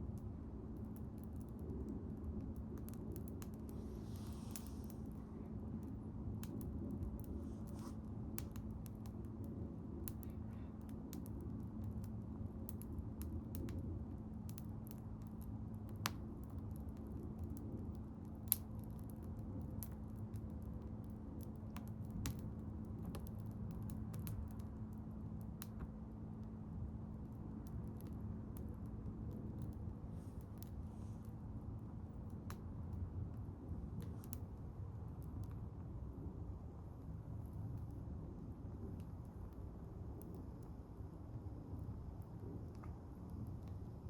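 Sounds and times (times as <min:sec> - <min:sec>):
bonfire crackling and popping: 0:00.0 - 0:44.0
rush of flame: 0:00.5 - 0:24.8, 0:27.8 - 0:36.5.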